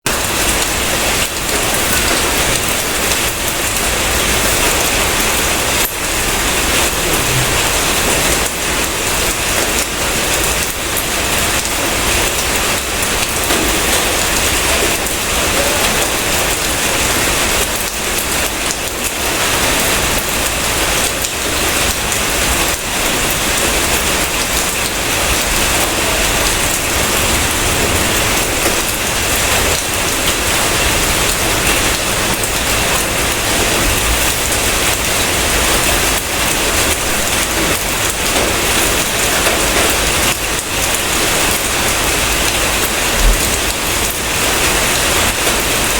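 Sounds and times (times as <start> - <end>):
heavy rain falling: 0.0 - 45.9.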